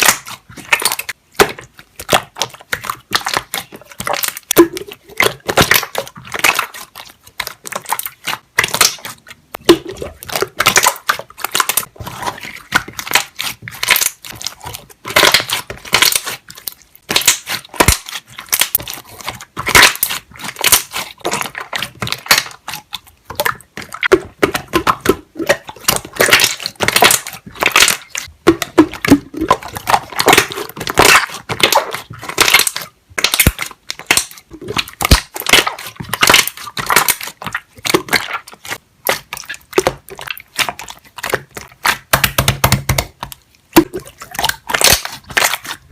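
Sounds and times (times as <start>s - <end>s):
slime being squeezed: 0.0s - 45.9s
air bubbles popping: 3.2s - 6.8s, 7.6s - 11.9s, 19.7s - 40.6s, 43.8s - 45.9s.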